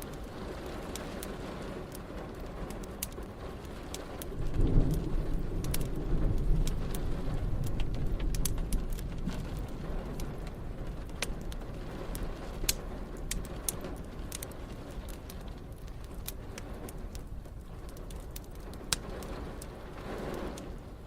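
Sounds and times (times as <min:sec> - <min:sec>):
steady rain: 0:00.0 - 0:21.0
thunder rumbling: 0:00.0 - 0:21.0
wood fire crackling: 0:00.0 - 0:21.0.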